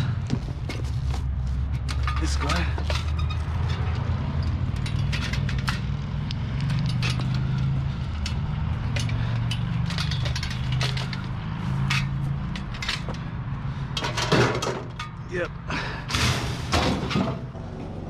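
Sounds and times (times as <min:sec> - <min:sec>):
vehicle engine running: 0:03.4 - 0:13.8
clicks and rattles: 0:08.2 - 0:13.2.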